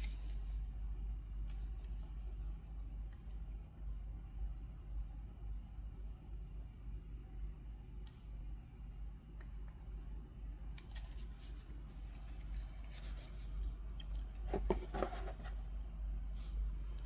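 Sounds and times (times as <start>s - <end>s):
steady low hum: 0.0s - 17.0s
rubbing and rustling: 10.9s - 13.7s, 14.4s - 15.6s.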